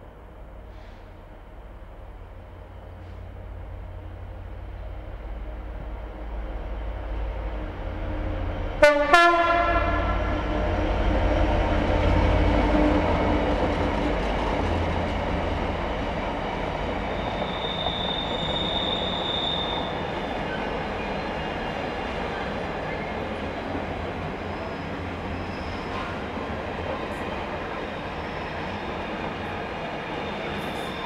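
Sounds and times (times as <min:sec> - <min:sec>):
diesel locomotive engine droning: 0:00.0 - 0:31.0
high-pitched wheel squeal: 0:17.1 - 0:21.3, 0:24.5 - 0:26.2, 0:30.2 - 0:31.0.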